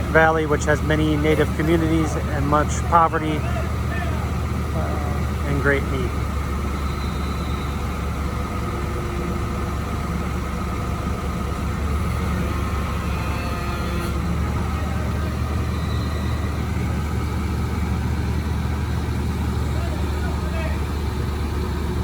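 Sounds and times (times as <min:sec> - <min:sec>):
crane engine droning: 0:00.0 - 0:22.0.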